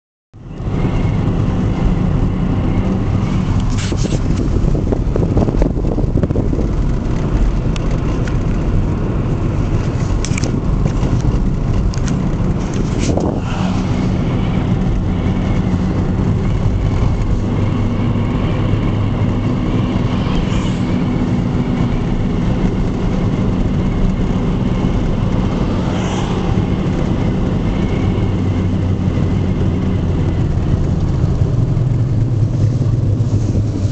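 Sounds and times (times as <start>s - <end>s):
car engine and road rumble: 0.4s - 33.9s.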